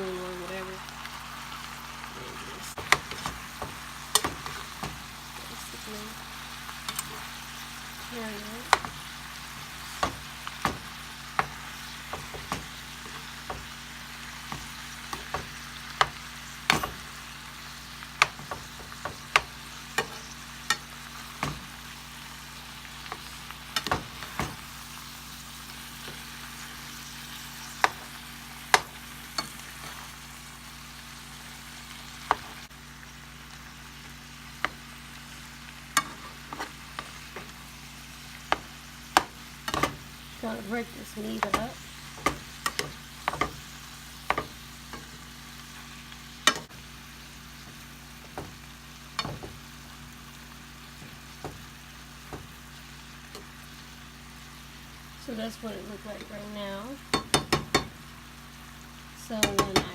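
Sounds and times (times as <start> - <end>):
meat sizzling in oil: 0.0 - 59.9.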